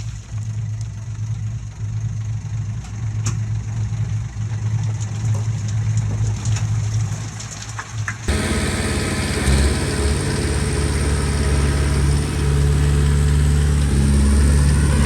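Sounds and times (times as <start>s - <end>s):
diesel engine idling: 8.2s - 15.0s.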